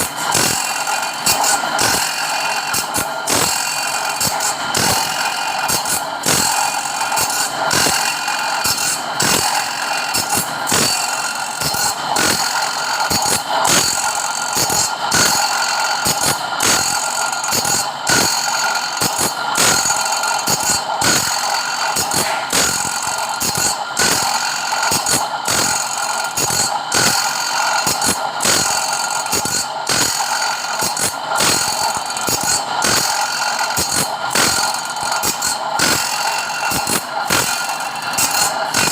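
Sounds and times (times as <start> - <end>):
sharpening machine grinding whine: 0.0 - 38.9.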